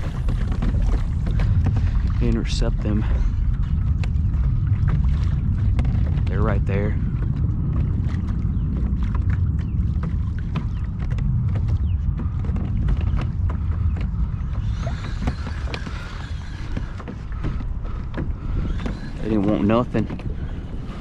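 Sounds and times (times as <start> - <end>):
wind rumbling on microphone: 0.0 - 21.0
kayak gear clicks and creaks: 5.6 - 6.3, 10.5 - 20.7.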